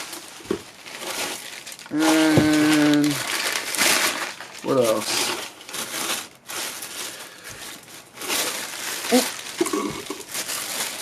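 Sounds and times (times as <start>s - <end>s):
packaging crinkling and rustling: 0.0s - 11.0s
person humming: 1.9s - 3.2s.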